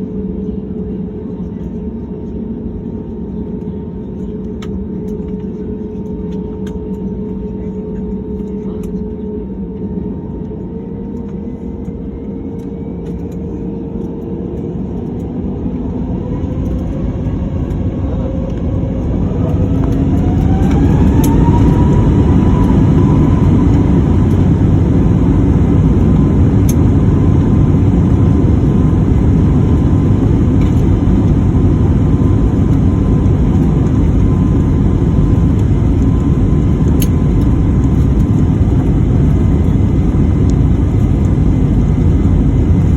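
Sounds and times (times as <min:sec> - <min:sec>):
jet engines spooling up: 0:13.1 - 0:42.9.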